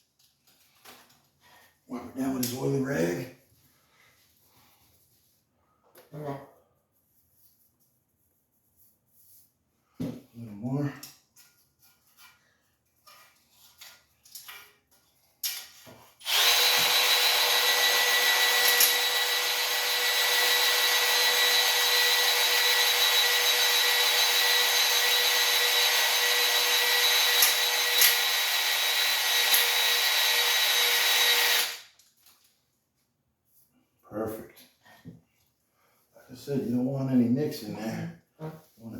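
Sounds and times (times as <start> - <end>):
electric drill honing cylinder: 16.2 - 31.9.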